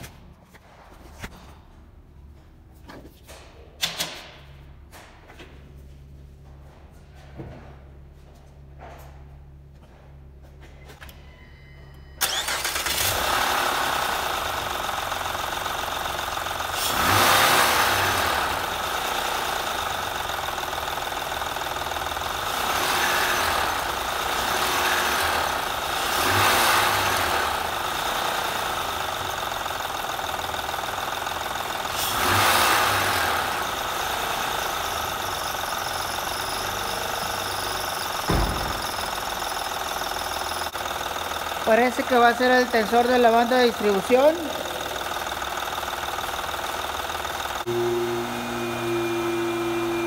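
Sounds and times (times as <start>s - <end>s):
car engine starting and running: 12.2s - 50.0s.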